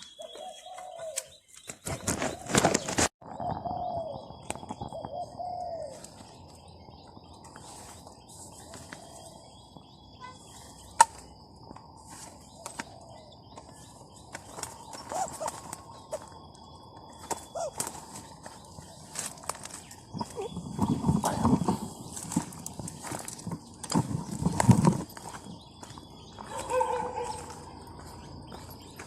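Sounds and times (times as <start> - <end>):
dove cooing: 0.1 - 1.2, 3.3 - 6.2, 14.9 - 16.3, 17.3 - 22.0.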